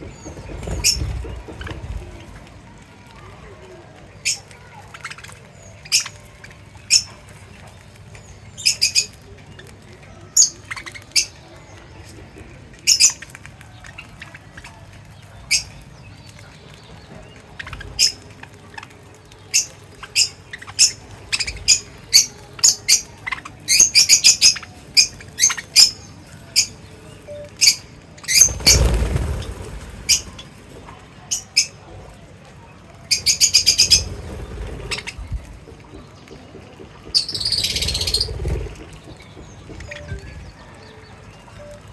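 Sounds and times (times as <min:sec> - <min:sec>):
parrots chirping: 0:33.1 - 0:35.3, 0:37.0 - 0:39.0.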